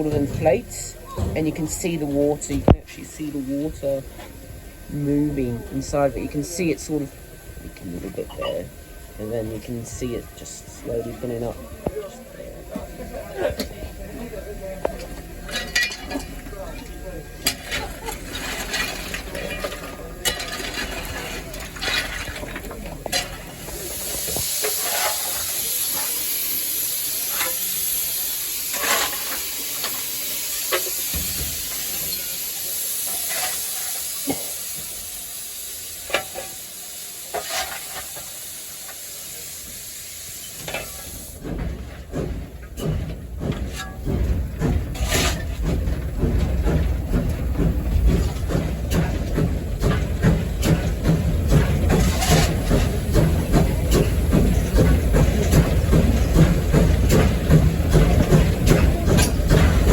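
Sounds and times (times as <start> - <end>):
steam locomotive hissing: 0.0 - 59.9
loud low rumbling with knocks: 41.3 - 59.9.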